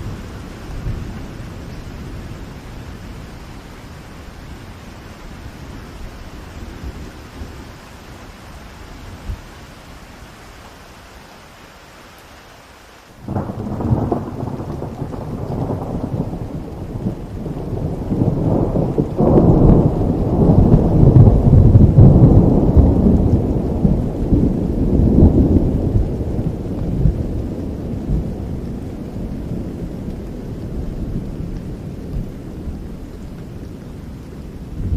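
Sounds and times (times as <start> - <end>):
steady rain: 0.0 - 34.9
thunder rolling: 13.2 - 33.0, 34.6 - 34.9.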